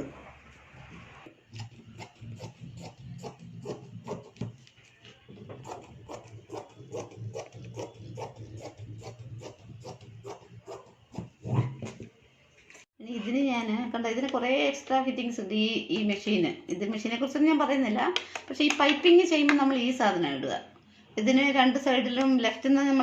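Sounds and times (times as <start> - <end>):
scissors snipping cloth: 1.5 - 4.5.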